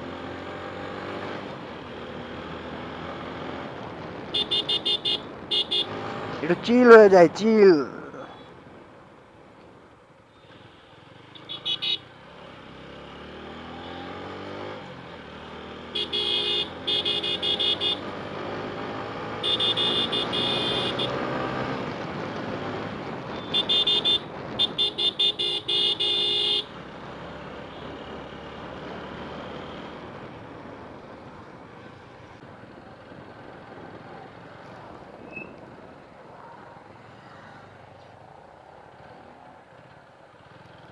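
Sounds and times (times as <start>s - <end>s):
vehicle horn honking: 4.4s - 6.0s, 16.0s - 18.0s, 19.4s - 21.2s, 23.3s - 26.7s.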